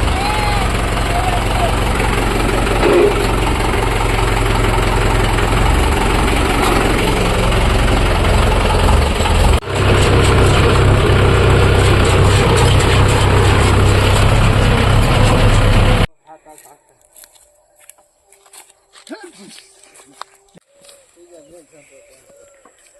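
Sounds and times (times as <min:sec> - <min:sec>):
tractor diesel engine rumbling: 0:00.0 - 0:16.1.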